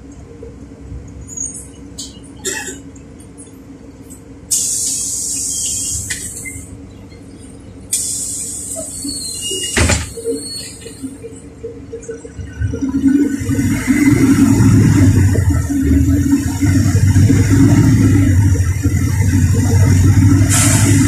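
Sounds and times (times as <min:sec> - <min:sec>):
bus engine humming: 0:00.0 - 0:21.0
compressed air hissing: 0:04.5 - 0:06.1, 0:07.9 - 0:09.1, 0:20.5 - 0:21.0
bus doors thudding shut: 0:09.6 - 0:10.4.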